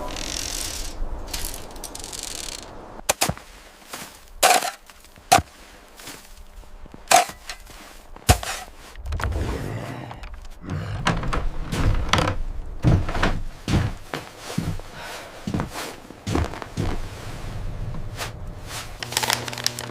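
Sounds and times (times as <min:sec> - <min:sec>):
sharp cracks: 0:00.0 - 0:03.4.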